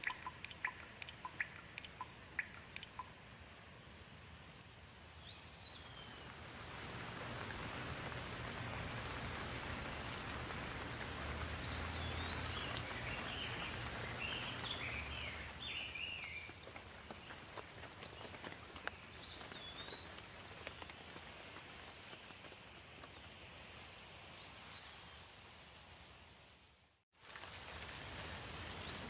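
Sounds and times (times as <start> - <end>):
bird chirping: 0.0 - 3.2, 11.4 - 17.4
steady rain falling: 0.0 - 29.0.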